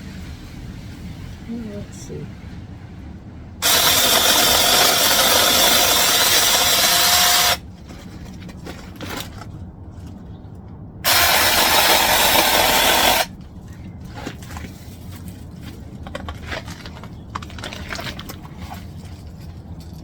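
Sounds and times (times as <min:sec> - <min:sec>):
mini chainsaw cutting branch: 0:03.6 - 0:07.6, 0:11.0 - 0:13.3.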